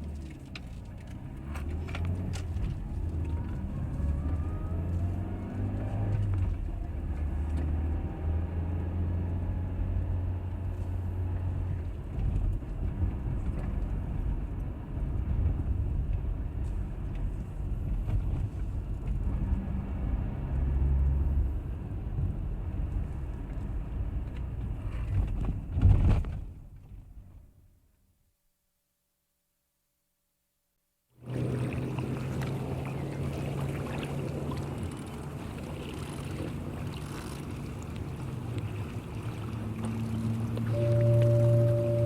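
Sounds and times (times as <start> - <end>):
road rumble inside car: 0.0 - 27.8, 31.2 - 42.0
car engine running: 31.2 - 42.0.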